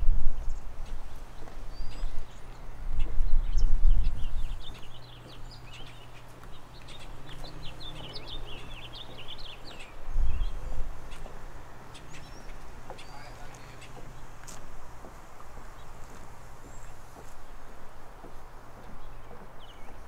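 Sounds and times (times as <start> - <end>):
songbird warbling: 1.7 - 14.4.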